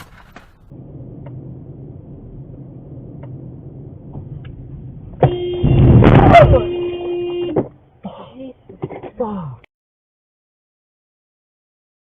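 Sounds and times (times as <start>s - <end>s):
car driving hum from inside: 0.7s - 7.8s
car horn: 5.2s - 7.8s.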